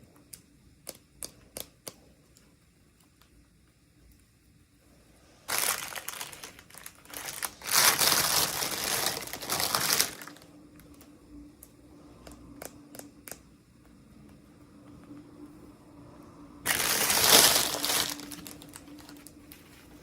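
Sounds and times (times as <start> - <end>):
light clicks and taps: 0.1 - 4.2
packaging crumpling: 5.5 - 11.0, 16.7 - 20.0.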